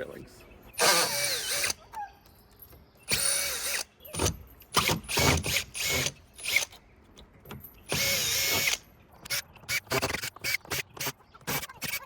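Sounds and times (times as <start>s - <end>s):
cordless drill whirring: 0.8s - 1.8s, 4.8s - 6.8s, 7.9s - 8.8s.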